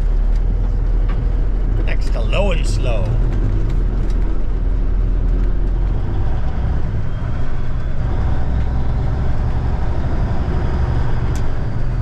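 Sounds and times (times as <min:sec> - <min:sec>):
truck diesel engine running: 0:00.0 - 0:05.4.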